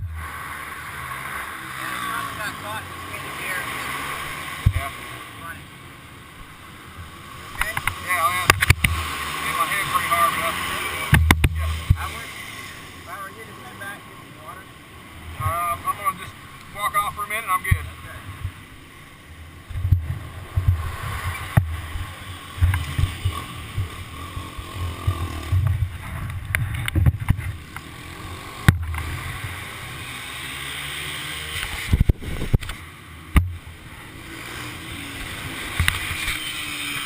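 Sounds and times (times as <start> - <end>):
sharp knocks: 11.1 - 12.0
wind buffeting microphone: 31.8 - 32.7.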